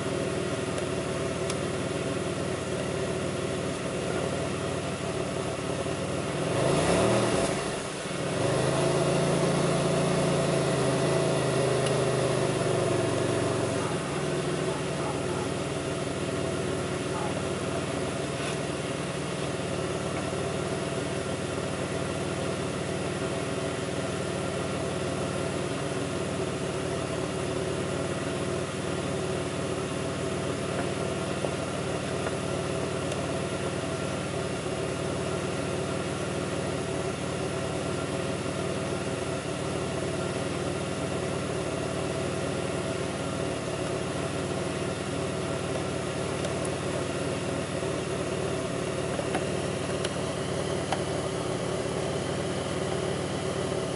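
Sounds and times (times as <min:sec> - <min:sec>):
car engine rough idle: 0:00.0 - 0:53.9.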